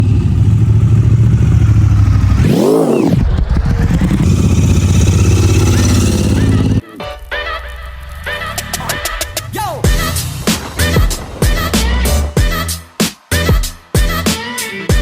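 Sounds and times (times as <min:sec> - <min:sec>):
motorcycle engine revving: 0:00.0 - 0:06.8, 0:07.5 - 0:12.6.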